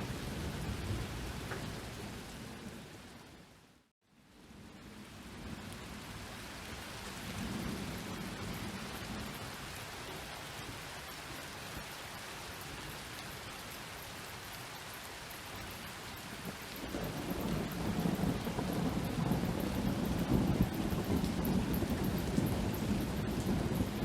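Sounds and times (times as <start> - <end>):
steady rain falling: 0.0 - 24.0
thunder rumble: 16.2 - 24.0.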